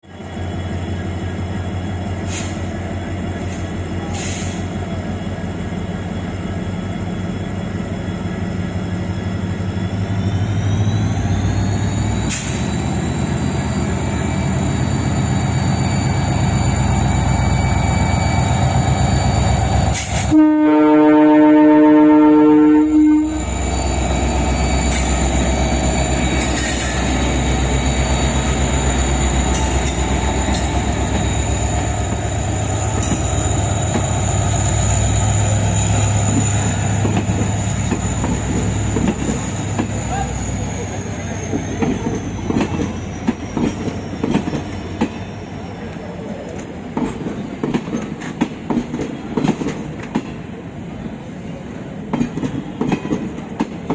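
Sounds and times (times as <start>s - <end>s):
diesel locomotive engine running: 0.0s - 53.9s
locomotive horn blast: 20.0s - 23.5s.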